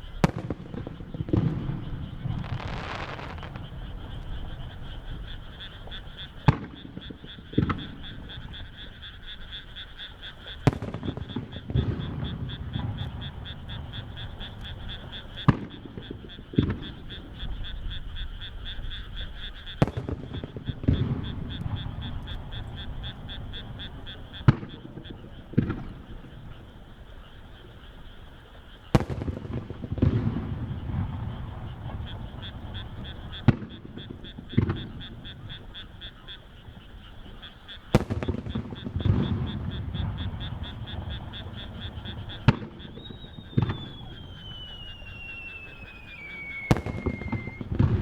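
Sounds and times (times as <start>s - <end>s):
frogs croaking: 0.0s - 48.0s
firework shells bursting: 0.2s - 8.6s, 10.4s - 17.0s, 19.8s - 24.7s, 28.9s - 35.7s, 37.2s - 48.0s
fireworks shell bursts: 2.3s - 4.2s, 38.0s - 48.0s.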